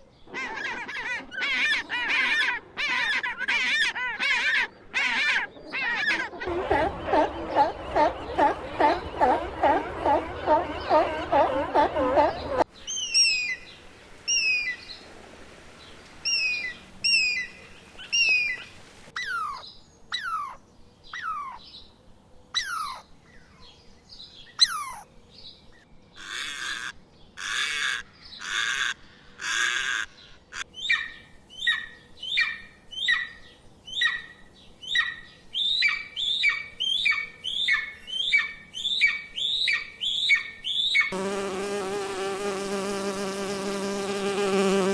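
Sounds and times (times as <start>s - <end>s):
harsh bird squawks: 19.2s - 19.6s, 22.6s - 23.0s, 24.6s - 25.1s
short high bird chirps: 24.6s - 25.0s.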